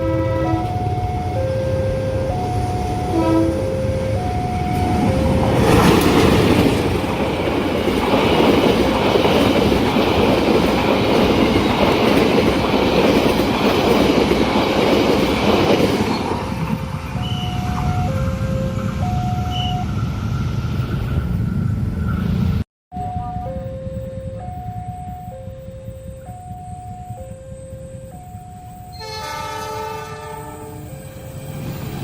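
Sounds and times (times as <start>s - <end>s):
crossing warning chime: 0.0s - 14.2s, 15.6s - 20.8s, 22.9s - 32.0s
train wheels rolling by: 2.2s - 22.6s.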